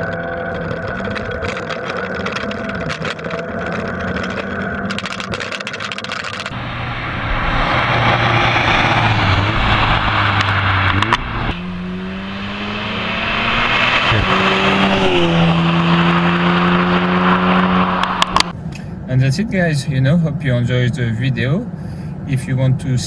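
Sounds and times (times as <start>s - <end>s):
gear change crack: 0.6s - 18.9s
car engine revving hard: 6.5s - 18.5s.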